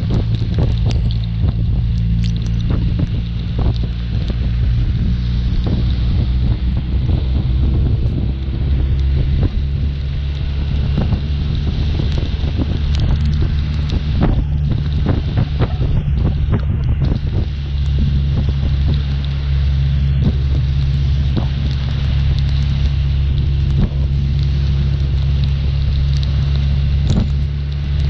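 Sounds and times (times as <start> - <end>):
motorcycle engine cruising: 0.0 - 28.0
wind buffeting microphone: 0.0 - 28.0.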